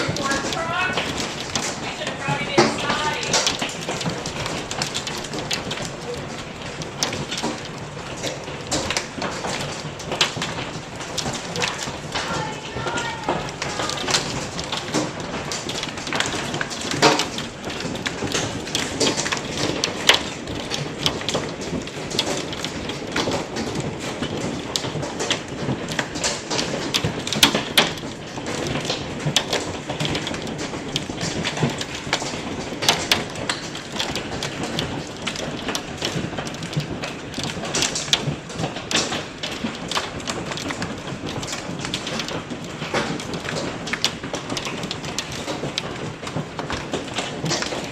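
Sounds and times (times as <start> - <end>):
hail pattering: 0.0 - 47.9
hailstones knocking hard surfaces: 0.0 - 47.9.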